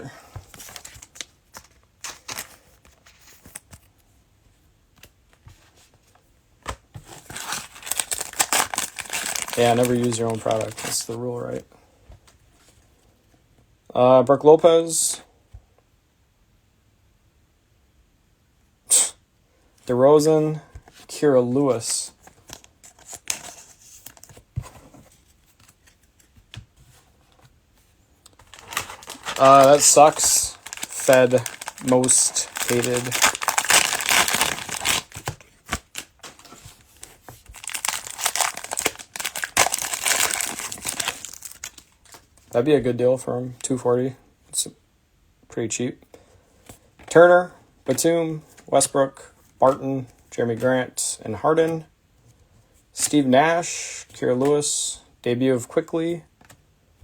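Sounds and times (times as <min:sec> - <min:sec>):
cards flipped through by hand: 0:00.4 - 0:03.9, 0:22.3 - 0:27.4, 0:28.3 - 0:42.2.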